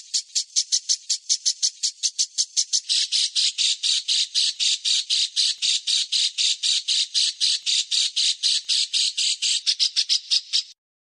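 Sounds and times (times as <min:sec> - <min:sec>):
bird's harsh rasping call: 0:00.0 - 0:10.8.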